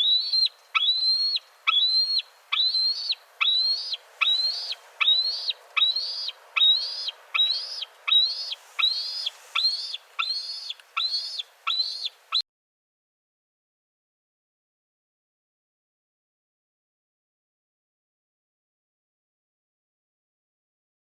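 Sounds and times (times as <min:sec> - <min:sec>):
bird whistled call: 0:00.0 - 0:12.4.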